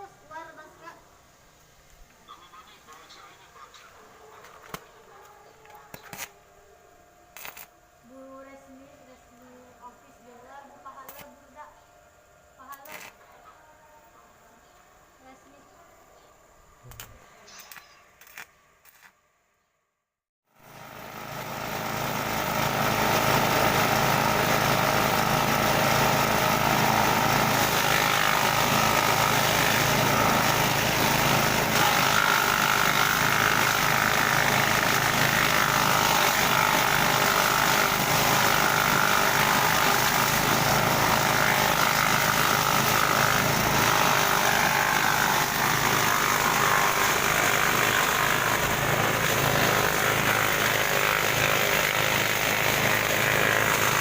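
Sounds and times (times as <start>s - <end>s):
grass chopper machine running: 12.6s - 13.4s, 20.6s - 54.0s.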